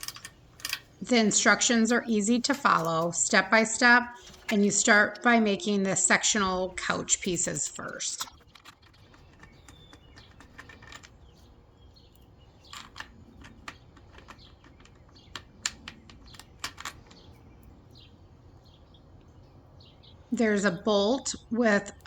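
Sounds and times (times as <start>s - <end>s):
clicks and knocks of hardware: 0.0s - 4.9s, 7.2s - 11.5s, 12.1s - 17.3s.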